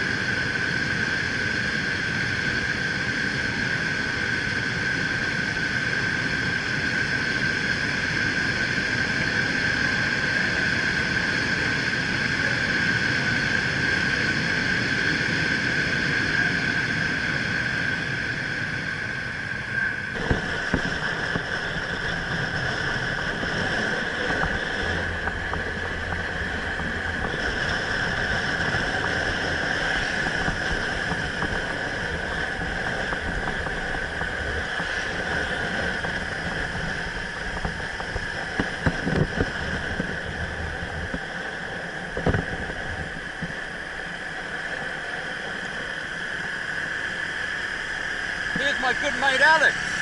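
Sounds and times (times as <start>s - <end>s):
wind on microphone: 0.0s - 49.0s
road noise: 8.9s - 50.0s
motorbike engine: 20.1s - 46.0s.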